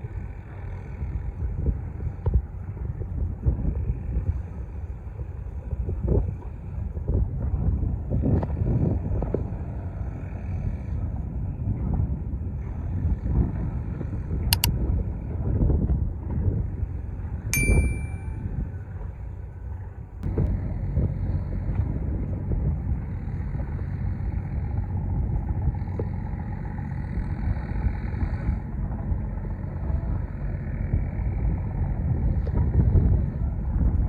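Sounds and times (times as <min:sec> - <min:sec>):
boat traffic: 0:17.2 - 0:18.4
metallic ding: 0:17.6 - 0:18.3.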